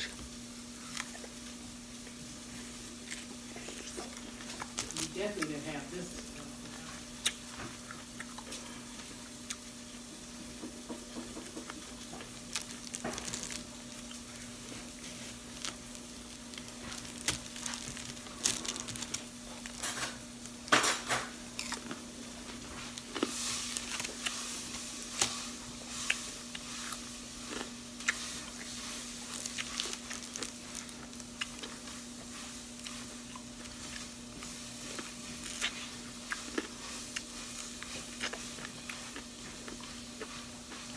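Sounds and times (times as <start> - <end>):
crunching candy apple: 0.0 - 9.8, 11.1 - 40.9.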